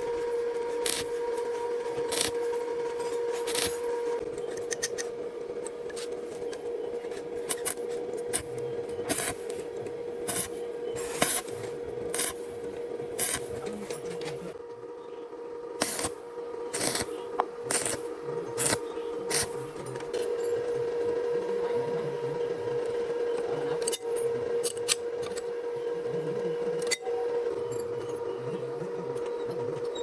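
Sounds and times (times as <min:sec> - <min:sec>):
steady hum: 0:00.0 - 0:29.8
hand tool rasping: 0:00.8 - 0:01.2, 0:02.1 - 0:02.4, 0:07.4 - 0:08.5, 0:09.1 - 0:09.6, 0:10.3 - 0:12.4, 0:13.2 - 0:14.1, 0:16.7 - 0:18.0, 0:18.6 - 0:19.6.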